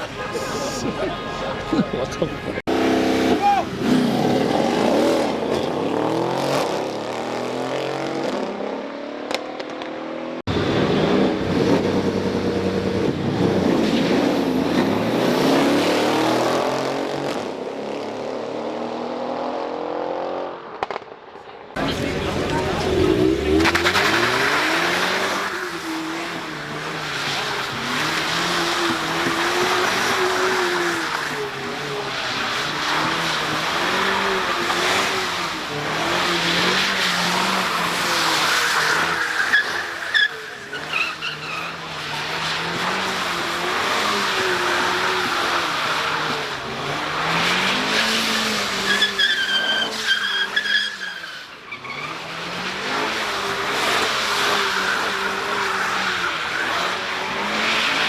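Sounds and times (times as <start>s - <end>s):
car engine revving: 0.0s - 9.8s, 21.8s - 49.4s.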